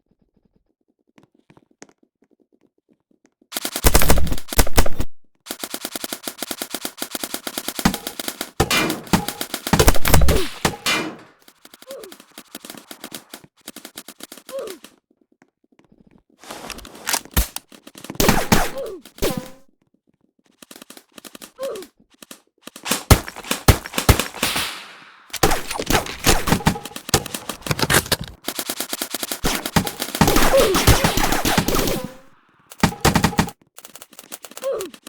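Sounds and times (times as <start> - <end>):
automatic gunfire bursts: 3.6 - 14.7, 16.6 - 19.6, 22.8 - 34.6
single gunshots: 7.8 - 11.4, 18.2 - 19.6, 22.9 - 33.5.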